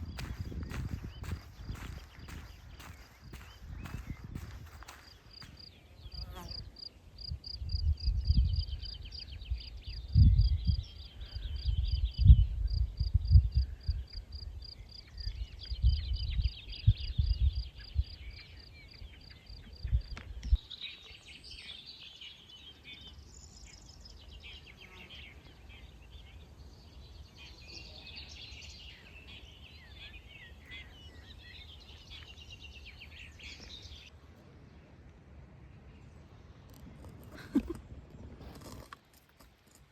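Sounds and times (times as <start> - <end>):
wind buffeting microphone: 0.0 - 6.4, 7.3 - 14.6, 15.2 - 18.4
birds twittering: 0.0 - 6.9, 17.8 - 34.1.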